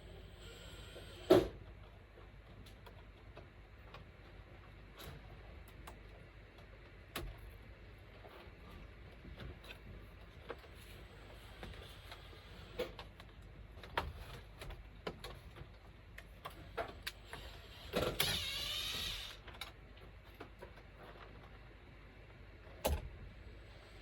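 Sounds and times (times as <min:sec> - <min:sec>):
power drill running: 0:17.2 - 0:19.5.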